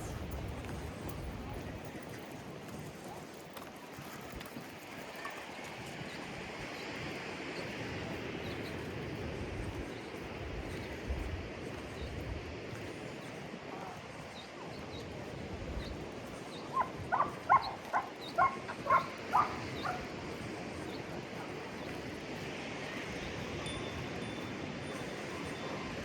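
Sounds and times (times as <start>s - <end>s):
dog barking: 16.7s - 20.1s.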